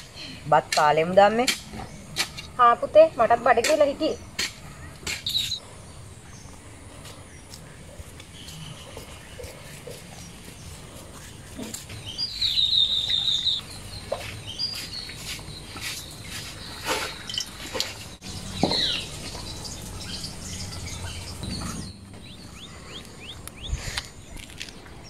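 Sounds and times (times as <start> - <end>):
high bird chirps: 4.1 - 5.6, 12.0 - 24.6.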